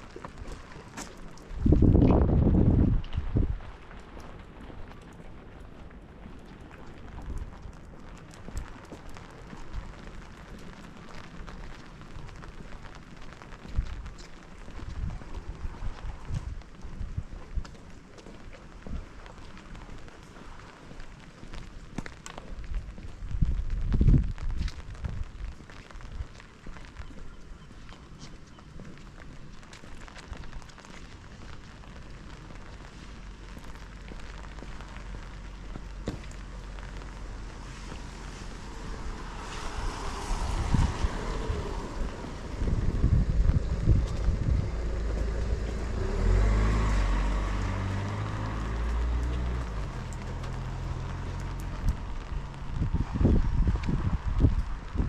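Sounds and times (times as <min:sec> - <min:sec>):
raindrops ticking nearby: 0:00.0 - 0:55.0
steady rain: 0:00.0 - 0:55.0
dull low thumps: 0:22.4 - 0:26.3, 0:40.5 - 0:55.0.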